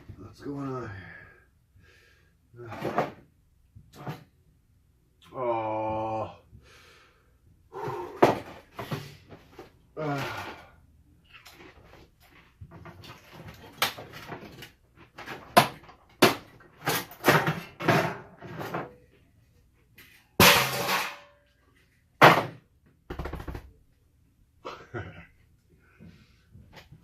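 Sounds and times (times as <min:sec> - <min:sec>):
hand tools and metal parts clattering: 0:11.3 - 0:19.0, 0:20.0 - 0:21.5.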